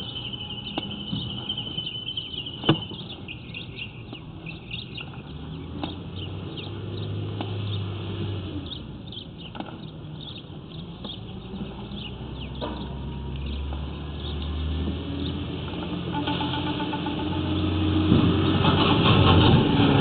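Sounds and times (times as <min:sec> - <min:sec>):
small birds chirping: 0:00.0 - 0:17.7.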